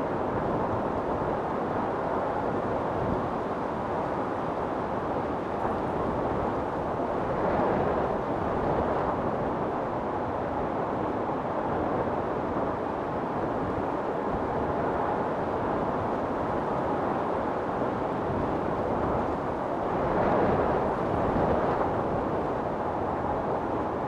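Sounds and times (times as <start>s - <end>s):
storm wind blowing: 13.6s - 24.0s.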